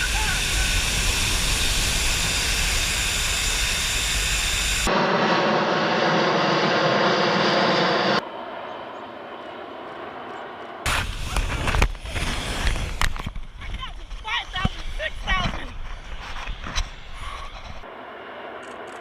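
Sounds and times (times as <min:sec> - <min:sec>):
jet engines running: 0:00.0 - 0:19.0.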